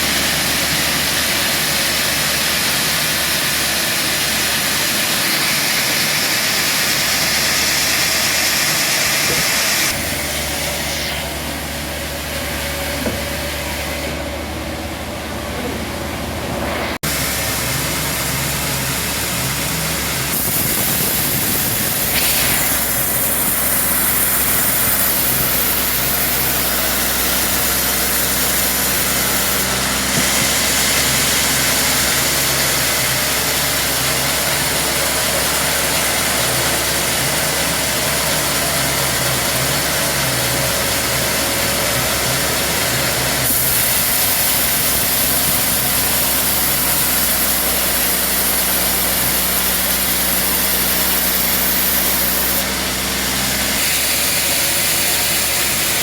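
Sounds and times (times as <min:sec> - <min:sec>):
band sawmill machine hum: 0:00.0 - 0:56.0.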